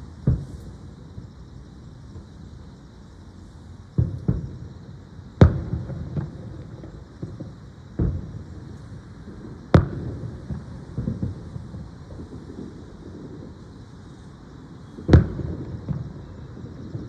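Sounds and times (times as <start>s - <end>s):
firework booms: 0.0s - 1.3s, 4.0s - 4.7s, 5.4s - 13.8s, 14.9s - 17.0s.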